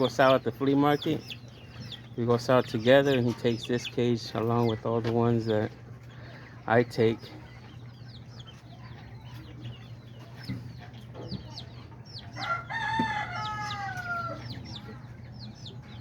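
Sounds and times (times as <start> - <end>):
small birds chirping: 0.0 - 16.0
rooster crowing: 12.4 - 14.6.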